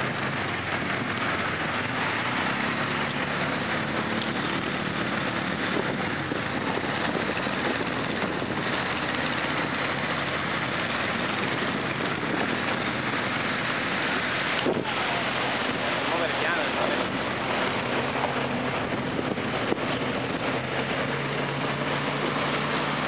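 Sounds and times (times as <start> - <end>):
constant hiss: 0.0 - 23.0
off-road vehicle engines running: 0.0 - 23.0.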